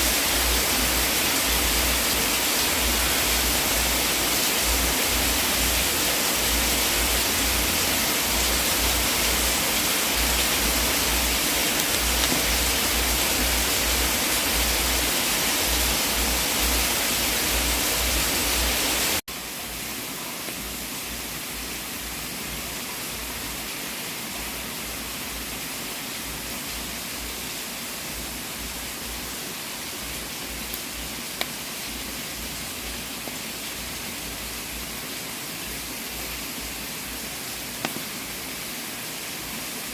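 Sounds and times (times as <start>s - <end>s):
fireplace fire hissing: 0.0s - 39.9s
faint fire pops: 37.8s - 38.2s.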